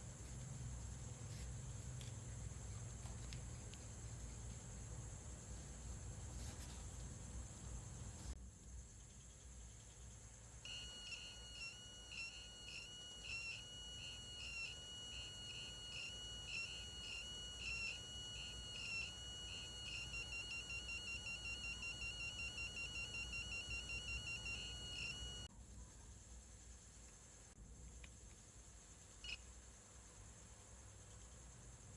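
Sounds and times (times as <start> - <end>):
piezo buzzer beeping: 10.7 - 25.5.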